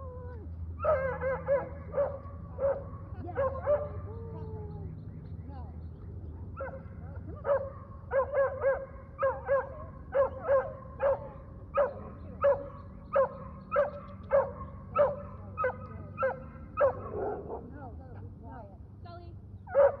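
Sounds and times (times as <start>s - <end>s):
dog barking: 0.8s - 4.5s, 6.5s - 17.8s, 19.7s - 20.0s.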